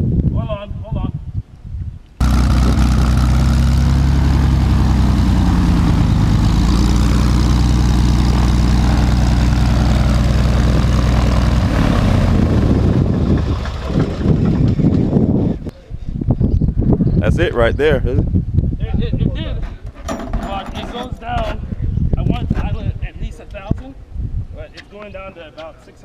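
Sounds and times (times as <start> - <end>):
propeller aircraft engine running: 2.2 - 15.7.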